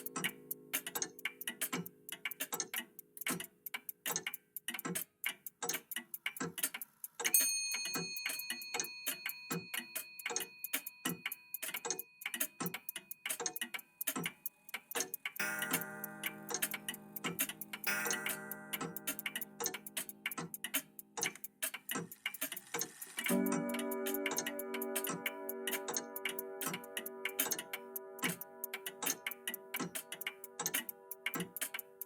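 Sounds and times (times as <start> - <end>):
mechanical clocks ticking: 0.0 - 32.0
clock chime: 7.4 - 12.2, 15.4 - 17.2, 17.8 - 19.6, 23.3 - 29.6.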